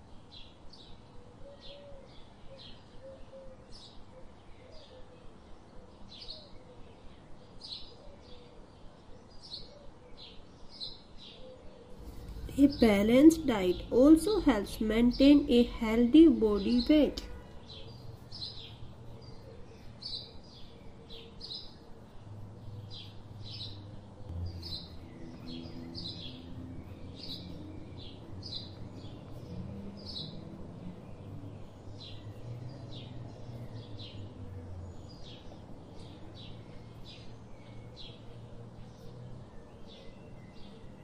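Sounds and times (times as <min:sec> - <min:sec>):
small birds chirping: 0:00.0 - 0:41.0
low hum: 0:12.0 - 0:39.2.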